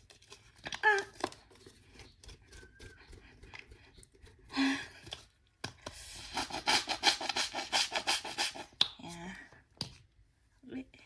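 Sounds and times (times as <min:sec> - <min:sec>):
scratchy rubbing strokes: 0:06.0 - 0:08.7.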